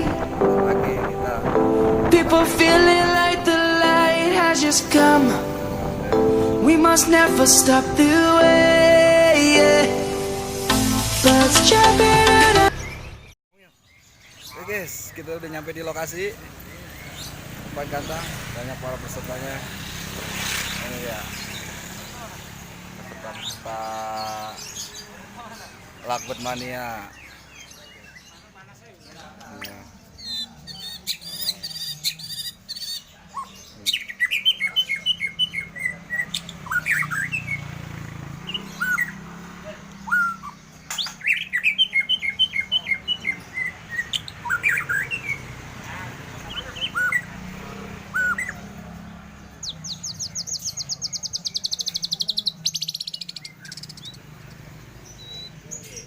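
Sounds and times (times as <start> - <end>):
lovebirds chirping: 0.0 - 56.0
high bird trill: 20.5 - 45.7, 46.3 - 56.0.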